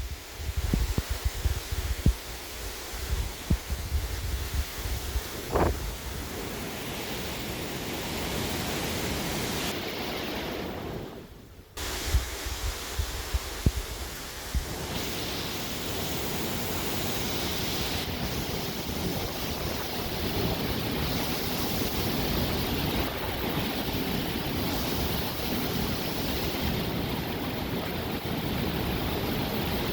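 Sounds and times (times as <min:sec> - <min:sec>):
strong wind blowing in gusts: 0:00.0 - 0:29.9
wind buffeting microphone: 0:00.0 - 0:29.9.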